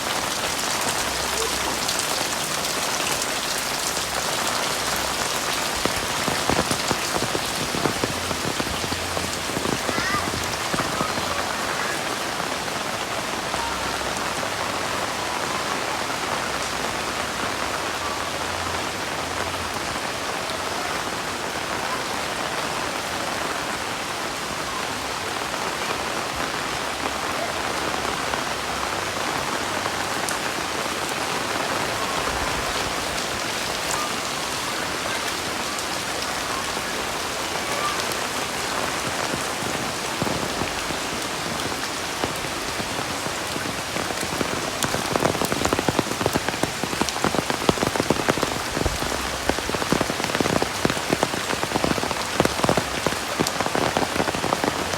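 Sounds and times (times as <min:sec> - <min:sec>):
sharp raindrop hits: 0:00.0 - 0:13.9, 0:29.7 - 0:54.9
heavy rain falling: 0:00.0 - 0:54.9.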